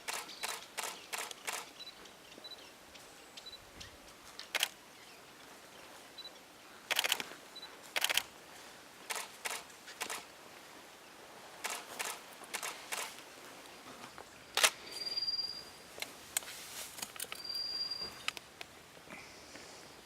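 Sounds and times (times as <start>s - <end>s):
camera shutters clicking: 0.1s - 1.7s, 4.5s - 4.8s, 6.9s - 7.3s, 7.9s - 8.3s, 9.1s - 10.3s, 11.6s - 13.2s, 14.6s - 14.8s
faint high peeps: 14.8s - 15.9s, 17.3s - 18.4s.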